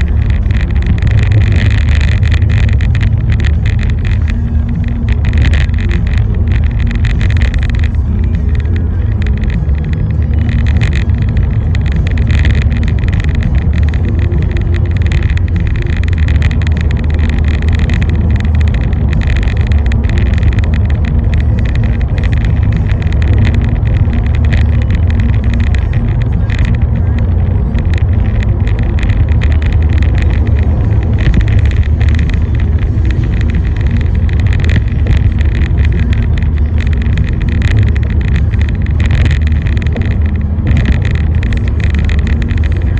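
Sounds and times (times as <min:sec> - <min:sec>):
car engine and tyres rumbling: 0:00.0 - 0:42.9
faint crackling rain hiss: 0:00.0 - 0:42.9.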